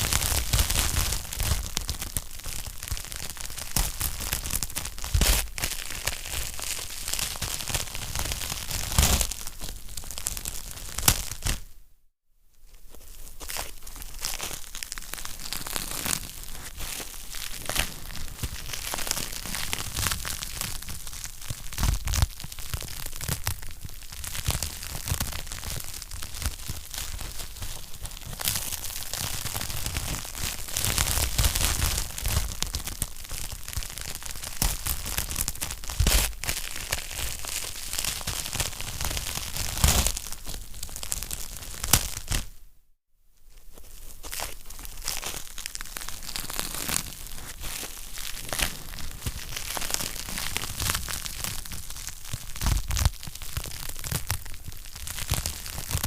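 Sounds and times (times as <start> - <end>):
wood fire crackling: 14.2 - 42.4, 44.7 - 56.0.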